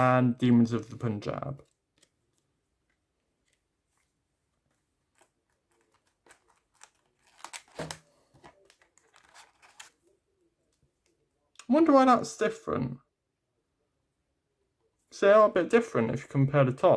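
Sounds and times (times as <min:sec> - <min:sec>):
card packs clicking and crinkling: 0:05.1 - 0:10.0.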